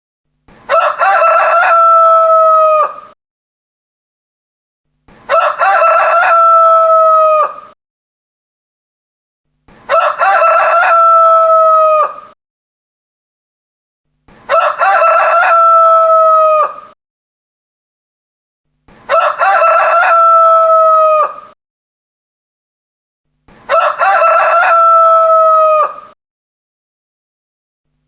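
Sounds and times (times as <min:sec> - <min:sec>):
rooster crowing: 0:00.7 - 0:03.2, 0:05.3 - 0:07.8, 0:09.9 - 0:12.4, 0:14.5 - 0:17.0, 0:19.1 - 0:21.6, 0:23.7 - 0:26.2.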